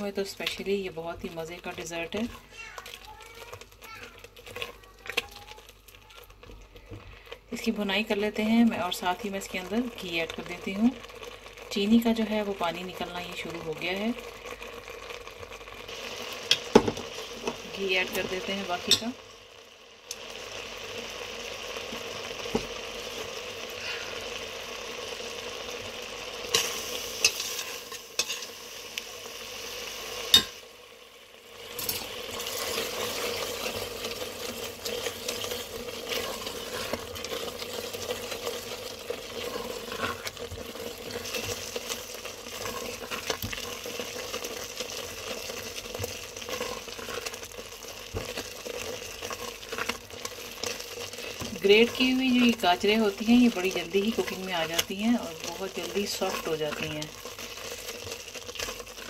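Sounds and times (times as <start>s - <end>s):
carrots sizzling in a pot: 0.0s - 59.0s
spatula scraping pan bottom: 26.5s - 28.5s, 32.6s - 47.4s.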